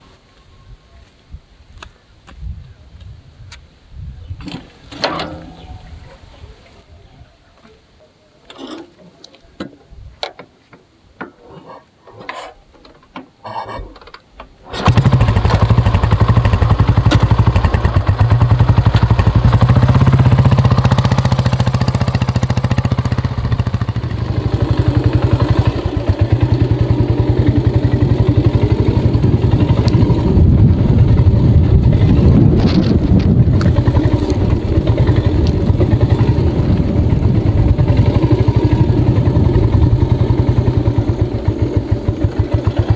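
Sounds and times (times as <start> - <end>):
motorcycle engine running: 14.8 - 42.9.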